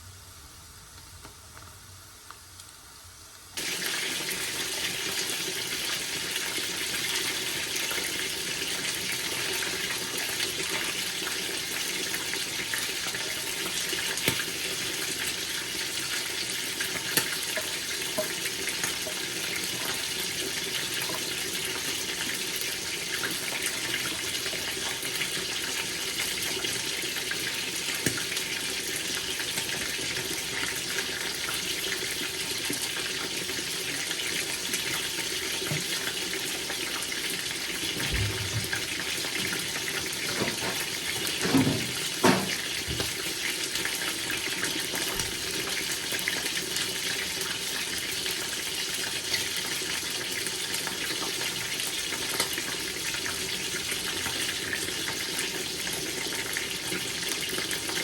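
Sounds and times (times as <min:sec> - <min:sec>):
onions sizzling in oil: 0:00.0 - 0:58.0.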